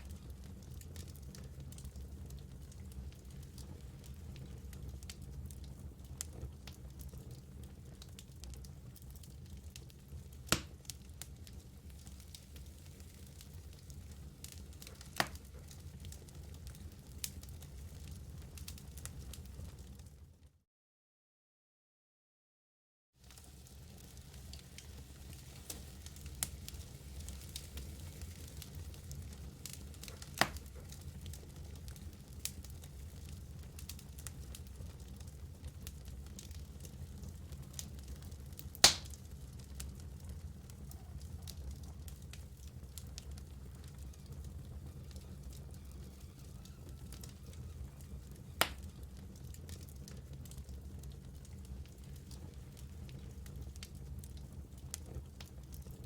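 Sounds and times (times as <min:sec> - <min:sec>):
fire rumbling: 0:00.0 - 0:20.3, 0:23.2 - 0:56.0
fire crackling and popping: 0:00.0 - 0:20.4, 0:23.2 - 0:56.0
loud fire pop: 0:30.4 - 0:30.7, 0:38.8 - 0:39.2, 0:48.6 - 0:48.8.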